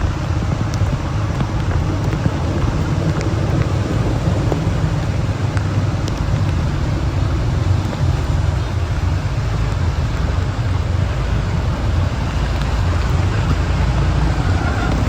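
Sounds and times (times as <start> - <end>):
vehicle and road rumble: 0.0 - 15.0.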